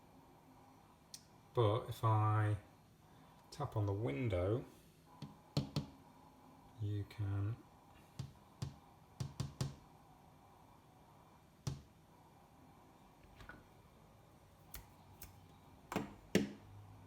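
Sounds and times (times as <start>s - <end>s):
fingers tapping on window: 5.2s - 6.0s, 8.1s - 9.8s, 11.6s - 11.9s, 15.9s - 16.6s.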